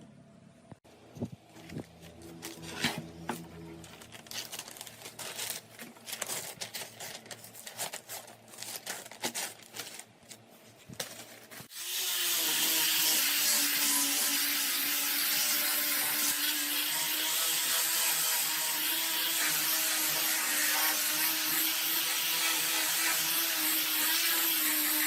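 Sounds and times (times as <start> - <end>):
power tool whirring: 11.6 - 25.0.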